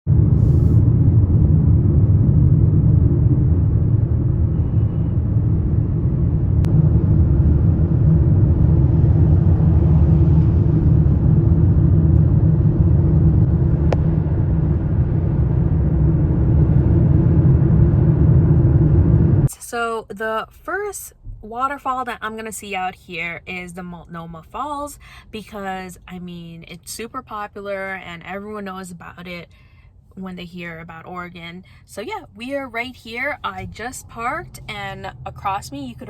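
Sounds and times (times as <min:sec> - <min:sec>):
car driving on a highway: 0:00.1 - 0:19.5, 0:32.2 - 0:36.0.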